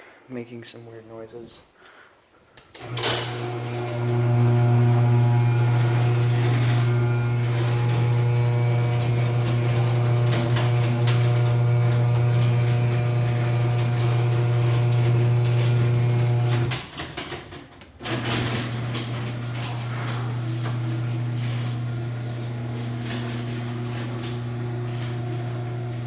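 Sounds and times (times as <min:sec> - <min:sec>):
door rollers clicking: 0:02.8 - 0:26.0
garage door opener motor humming: 0:02.8 - 0:26.0.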